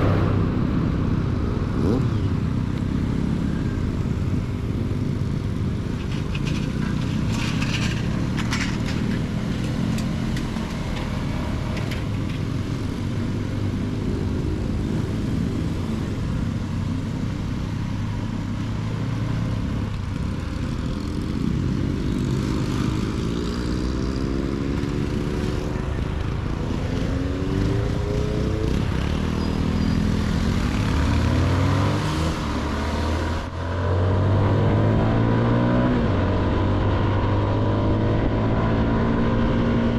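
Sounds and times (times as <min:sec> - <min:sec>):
wind rushing over microphone: 0:00.0 - 0:02.5
motorcycle engine accelerating: 0:00.0 - 0:12.4.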